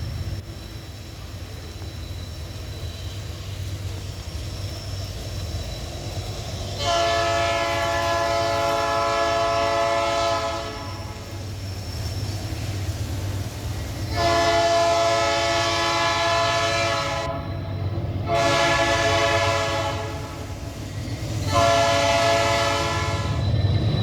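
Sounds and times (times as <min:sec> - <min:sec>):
diesel locomotives rumbling: 0:00.0 - 0:24.0
locomotive air horn blast: 0:06.8 - 0:11.3, 0:14.2 - 0:17.4, 0:18.3 - 0:20.5, 0:21.5 - 0:23.4.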